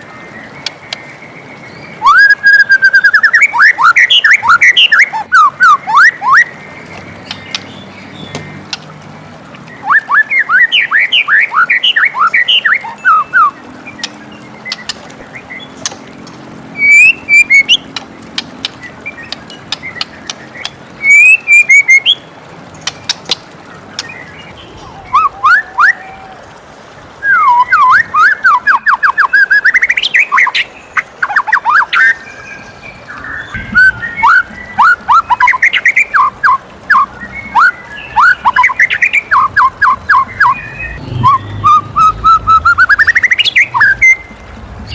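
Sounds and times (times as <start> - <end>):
bird singing: 0.0 - 8.8, 9.7 - 26.2, 27.2 - 44.9.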